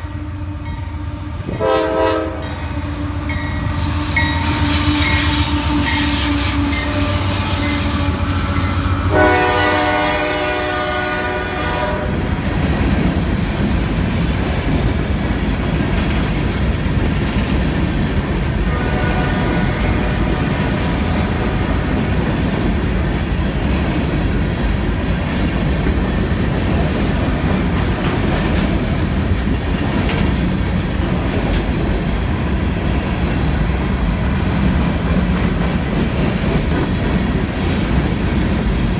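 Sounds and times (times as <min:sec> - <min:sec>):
locomotive horn chord: 0:00.0 - 0:12.2, 0:18.7 - 0:22.0
freight cars rumbling on rails: 0:02.7 - 0:38.9.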